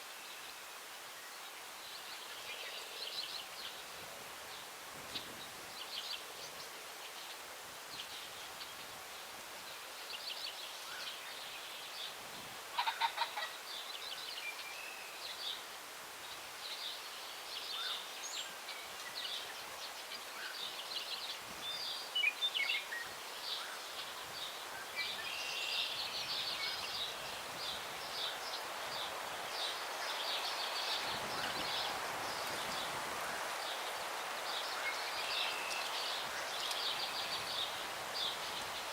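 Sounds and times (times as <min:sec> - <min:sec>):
small songbirds chirping: 0:00.0 - 0:12.2, 0:13.6 - 0:38.9
breeze rushing through trees: 0:00.0 - 0:38.9
pheasant crowing call: 0:12.7 - 0:13.6.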